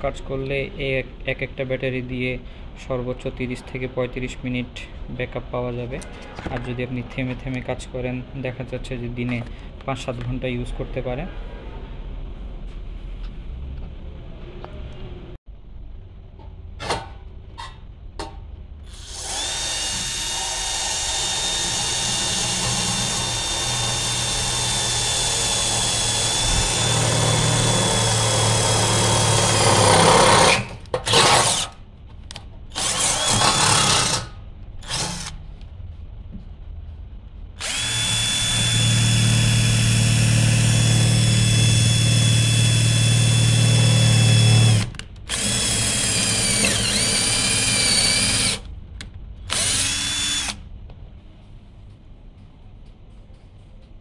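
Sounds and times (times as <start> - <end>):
cordless impact drill whining: 18.9 - 31.7, 32.8 - 34.2, 34.8 - 35.3, 37.6 - 48.6, 49.5 - 50.6.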